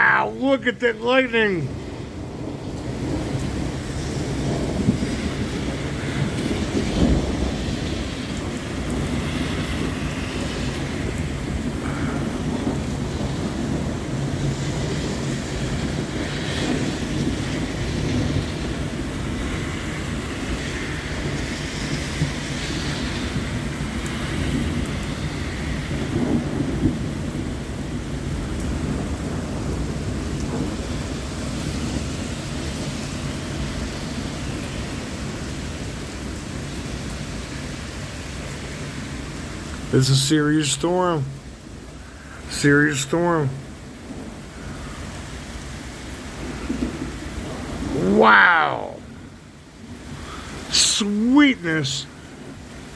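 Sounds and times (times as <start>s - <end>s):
steady rain: 0.0s - 52.9s
low rumble of thunder: 1.7s - 37.8s, 43.5s - 48.0s.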